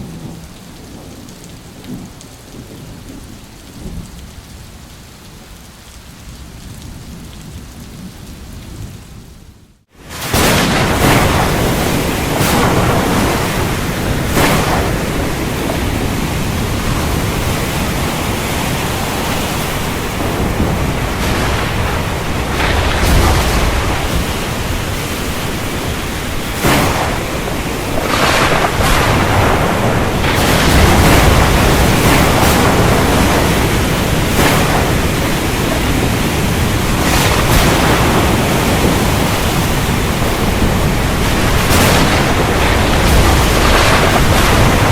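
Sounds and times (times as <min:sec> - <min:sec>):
rain: 0:00.0 - 0:44.9
wind: 0:00.0 - 0:44.9
choppy surf: 0:10.0 - 0:44.9
low thunder rumbling: 0:10.0 - 0:44.9.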